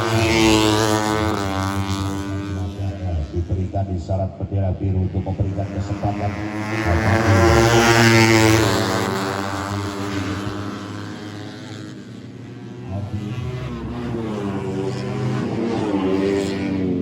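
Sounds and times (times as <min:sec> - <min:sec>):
motorcycles passing at speed: 0:00.0 - 0:17.0.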